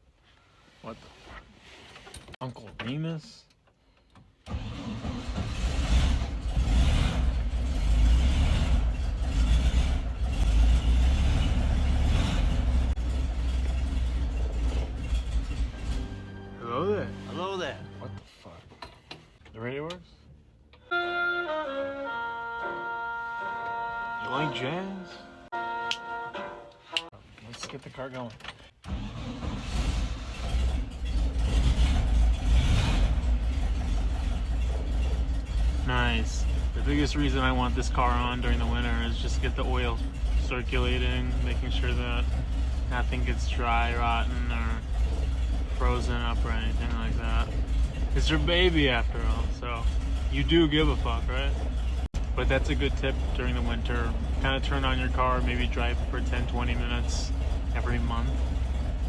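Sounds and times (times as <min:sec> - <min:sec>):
van engine running: 0:04.5 - 0:18.2, 0:28.9 - 0:59.0.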